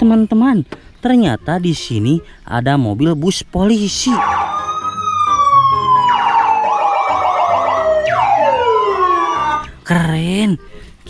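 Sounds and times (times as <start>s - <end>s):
police sirens wailing: 4.0s - 9.8s.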